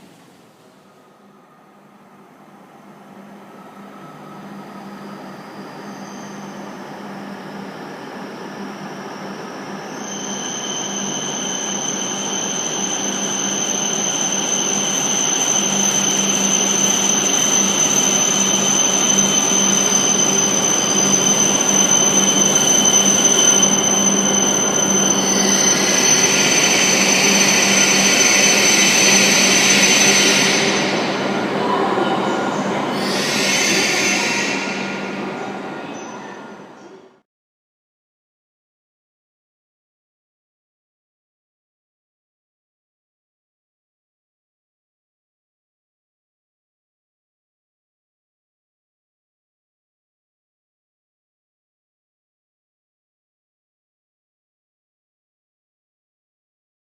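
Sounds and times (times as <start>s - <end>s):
high-speed train whine: 0.0s - 37.2s
train rushing past: 0.0s - 37.2s.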